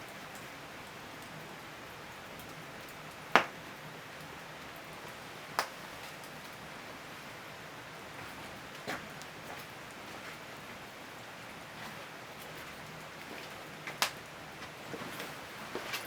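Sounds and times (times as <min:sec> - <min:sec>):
firewood burning with soft hiss: 0:00.0 - 0:16.0
wood popping cracks: 0:03.4 - 0:03.6.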